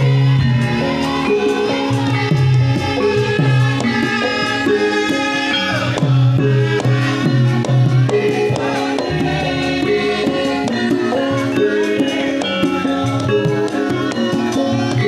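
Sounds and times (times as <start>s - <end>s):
gamelan music: 0.0s - 15.0s.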